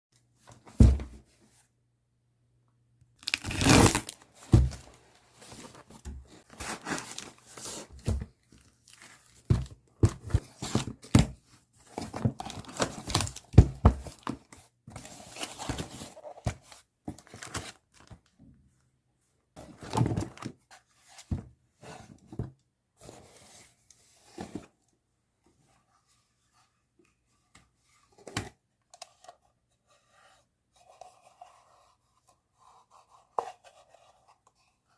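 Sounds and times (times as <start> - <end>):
packaging torn and crinkled: 3.2 - 4.2.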